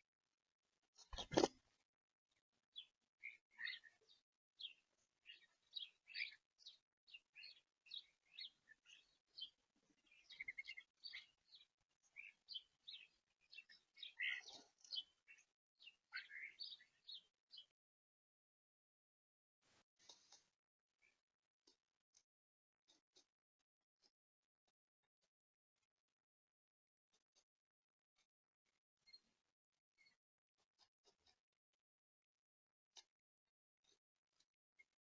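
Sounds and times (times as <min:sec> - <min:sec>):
songbirds chirping: 0:00.8 - 0:17.8.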